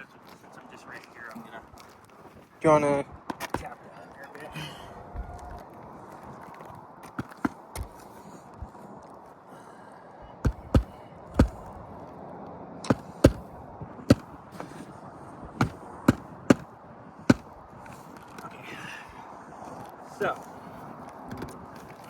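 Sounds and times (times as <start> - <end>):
hammer tapping roof shingle: 7.0 - 8.2, 10.4 - 11.7, 12.9 - 14.8, 15.6 - 16.7, 17.3 - 18.4.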